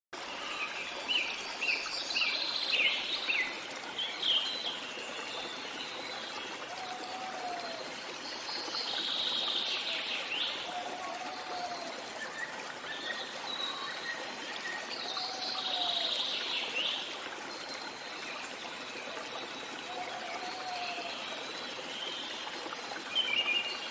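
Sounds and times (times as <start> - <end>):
songbirds singing: 0.2 - 17.1
stream flowing: 0.2 - 23.9.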